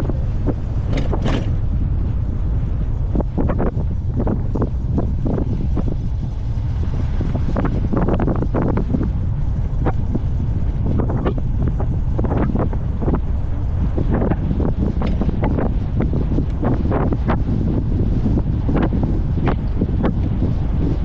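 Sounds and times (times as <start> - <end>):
wind rushing over microphone: 0.0 - 21.0
rattling knocks: 0.9 - 1.6.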